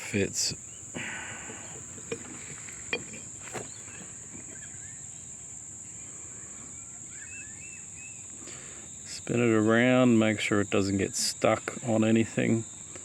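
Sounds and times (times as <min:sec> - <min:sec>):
crickets chirring: 0:00.0 - 0:13.0
light clicks and knocks: 0:01.5 - 0:04.1.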